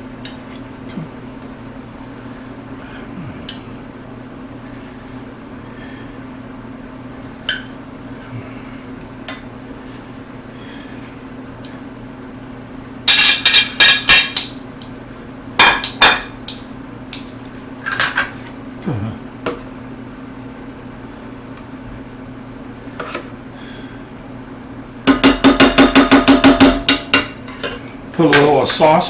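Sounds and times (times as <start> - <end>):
steady low hum: 0.0 - 29.0
metal utensil clinking on pan: 13.1 - 14.4.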